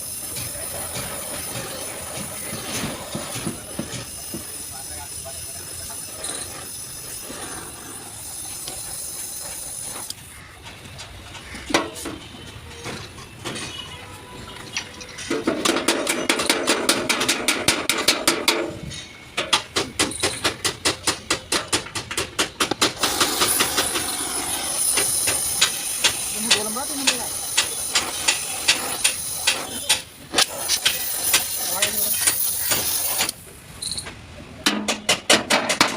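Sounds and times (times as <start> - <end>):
steady hiss: 0.0 - 10.5, 23.0 - 33.8
hammer striking sheet metal: 15.3 - 18.8, 34.6 - 35.9.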